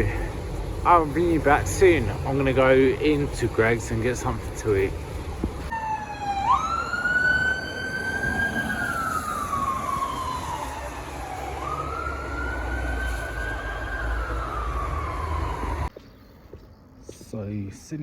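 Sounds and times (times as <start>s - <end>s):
low rumble of road traffic: 0.0s - 18.0s
emergency vehicle siren wailing: 5.7s - 15.9s.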